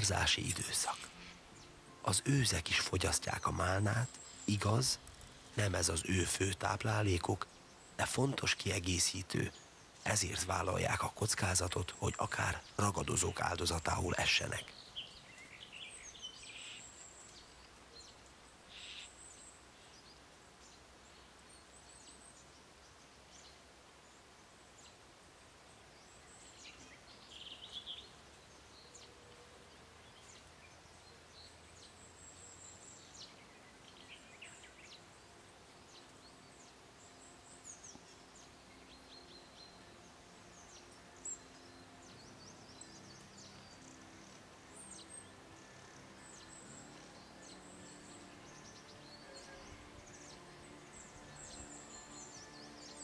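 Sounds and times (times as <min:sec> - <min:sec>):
faint high bird chirps: 0:00.0 - 0:20.1, 0:35.8 - 0:53.0.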